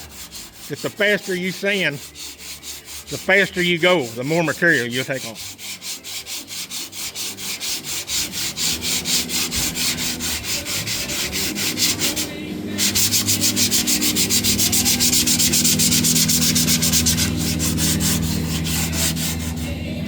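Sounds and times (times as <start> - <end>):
sandpaper rubbing on metal: 0.0 - 19.8.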